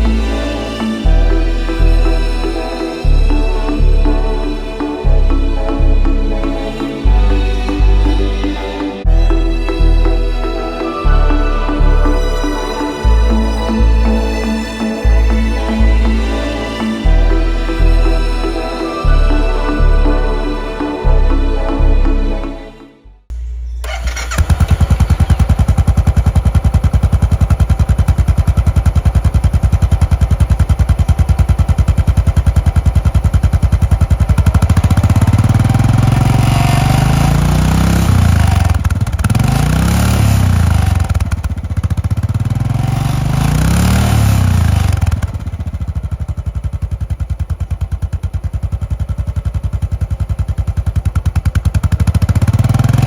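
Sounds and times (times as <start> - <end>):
motorcycle engine idling and revving: 23.4 - 53.0.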